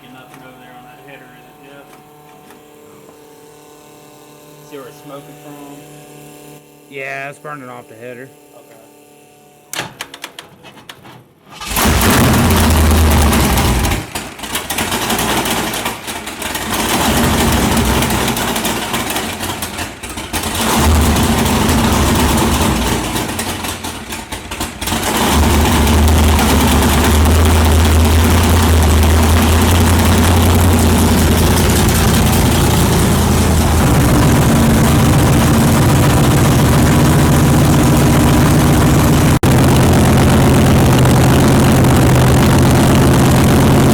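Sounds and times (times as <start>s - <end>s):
engine starting and idling rough: 11.4s - 43.9s.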